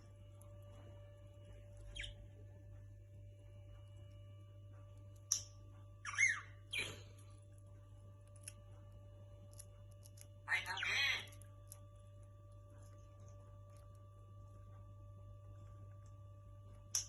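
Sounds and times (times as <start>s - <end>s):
low electrical hum: 0.0s - 17.0s
parrots squawking: 6.0s - 7.0s, 10.5s - 11.3s.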